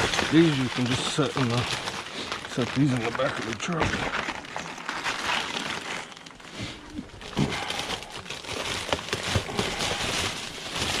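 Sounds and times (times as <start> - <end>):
plastic bags rustling: 0.0 - 11.0.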